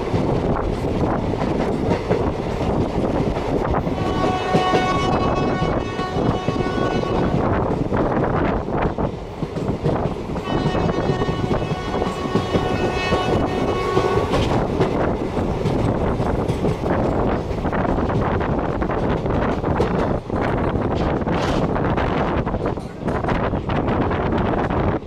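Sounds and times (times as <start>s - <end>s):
train rumble and rattle: 0.0s - 25.0s
locomotive horn: 4.0s - 7.5s, 10.4s - 14.4s.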